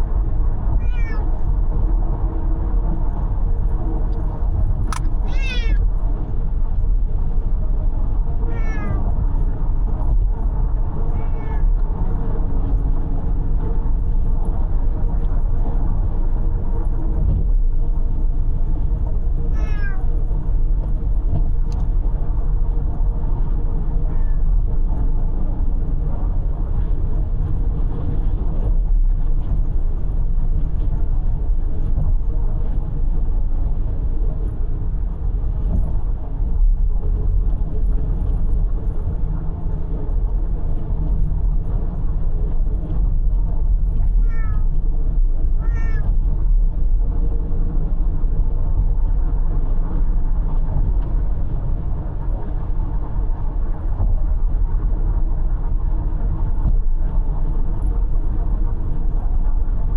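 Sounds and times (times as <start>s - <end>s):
road noise inside car: 0.0s - 59.9s
cat meowing: 0.8s - 1.3s, 5.2s - 5.8s, 8.5s - 9.1s, 11.1s - 11.7s, 19.5s - 20.1s, 24.0s - 24.4s, 44.2s - 44.7s, 45.6s - 46.1s
sharp click: 4.9s - 5.2s.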